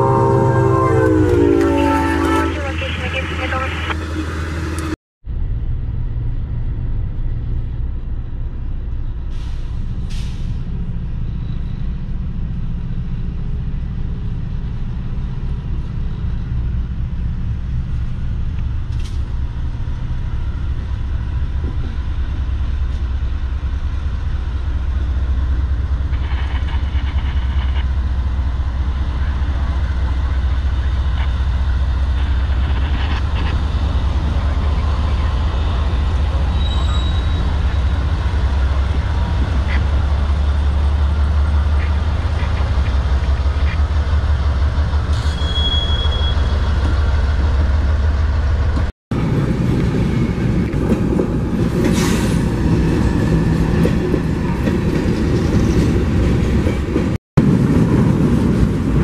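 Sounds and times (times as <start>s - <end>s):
diesel locomotive rumbling: 0.0s - 59.0s.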